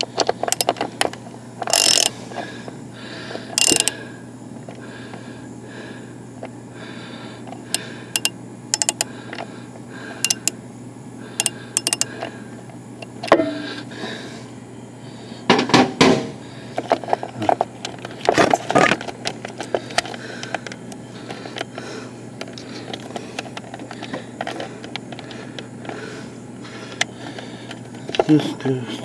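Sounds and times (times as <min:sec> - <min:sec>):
small parts clicking and clinking: 0:00.0 - 0:02.2, 0:03.6 - 0:04.0, 0:07.5 - 0:09.1, 0:10.2 - 0:10.6, 0:11.4 - 0:12.2, 0:16.8 - 0:21.7, 0:22.4 - 0:26.0, 0:26.9 - 0:28.4.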